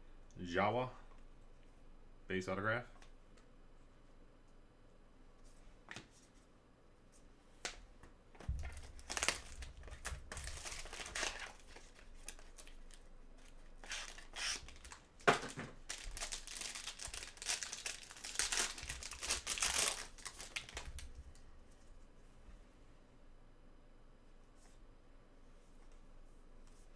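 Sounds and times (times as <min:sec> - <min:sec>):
card pack wrappers crinkling: 0:08.6 - 0:21.4.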